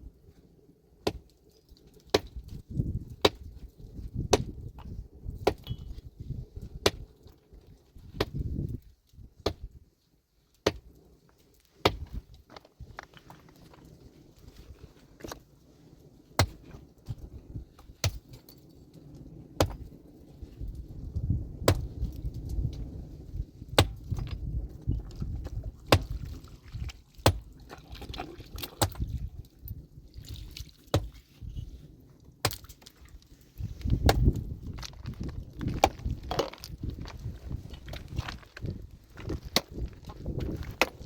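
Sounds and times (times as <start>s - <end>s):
pickaxe striking rock: 1.0s - 1.3s, 2.1s - 3.5s, 4.2s - 6.0s, 8.2s - 8.7s, 10.6s - 10.9s, 11.8s - 12.2s, 16.4s - 16.7s, 18.0s - 18.3s, 19.6s - 19.8s, 21.6s - 22.0s, 23.8s - 24.4s, 25.8s - 26.3s, 27.2s - 27.5s, 28.8s - 29.1s, 30.9s - 31.2s, 32.4s - 32.9s, 33.9s - 36.8s, 39.2s - 41.0s
stones knocking and scraping: 1.0s - 9.8s, 10.6s - 15.6s, 16.3s - 41.0s.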